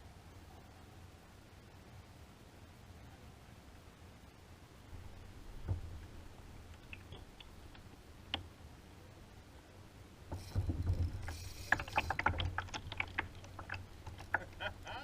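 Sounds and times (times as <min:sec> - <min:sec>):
water splashing and dripping: 0:10.3 - 0:14.9.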